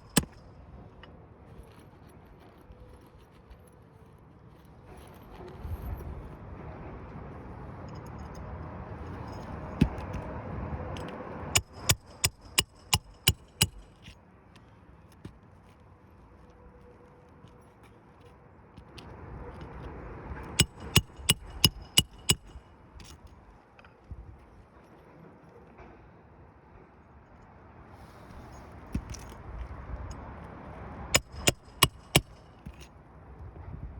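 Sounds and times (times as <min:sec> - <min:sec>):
hammer nailing roof shingle: 0:00.0 - 0:00.4, 0:11.6 - 0:14.2, 0:20.5 - 0:22.6, 0:31.2 - 0:32.9
shingle scraping: 0:11.6 - 0:16.0, 0:20.5 - 0:23.2, 0:31.1 - 0:32.9.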